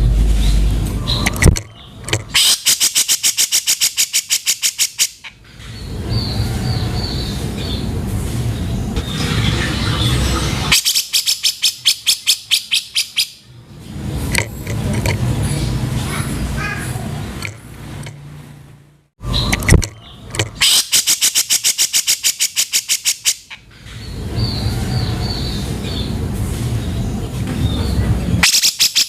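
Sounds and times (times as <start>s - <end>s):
bird rapid repeated notes: 0.0s - 7.9s, 8.6s - 13.4s, 19.3s - 26.2s, 28.4s - 29.0s
rough bird calls: 0.0s - 13.5s, 19.2s - 26.2s.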